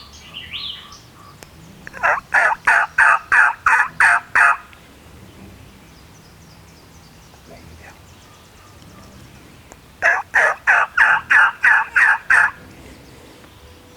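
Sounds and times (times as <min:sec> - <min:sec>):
turkey yelping: 0:01.2 - 0:04.8, 0:10.0 - 0:12.7.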